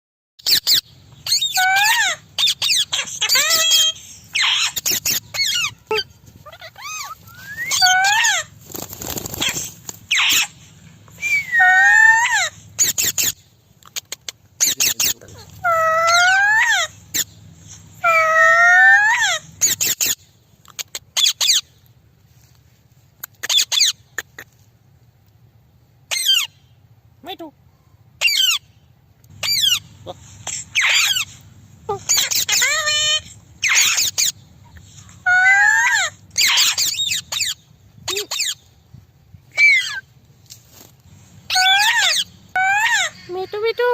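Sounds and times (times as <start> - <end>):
parrot harsh calls: 0.4 - 13.4, 14.6 - 20.2, 26.1 - 26.6, 28.2 - 28.7, 29.4 - 38.6, 39.5 - 40.1, 41.5 - 43.5
parrot rising wavering call: 1.3 - 8.6.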